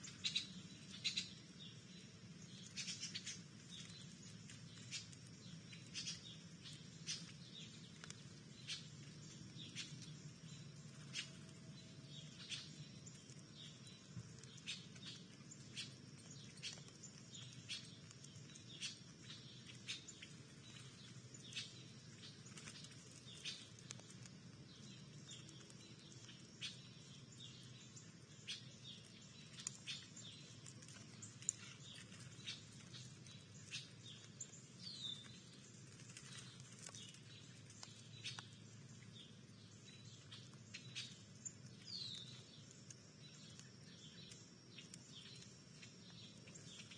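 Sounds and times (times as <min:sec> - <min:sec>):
songbirds chirping: 0:00.0 - 0:46.9.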